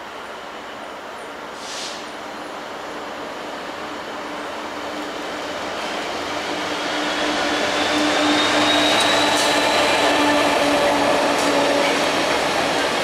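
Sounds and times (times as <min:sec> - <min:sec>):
diesel locomotive engine passing: 0:00.1 - 0:13.0.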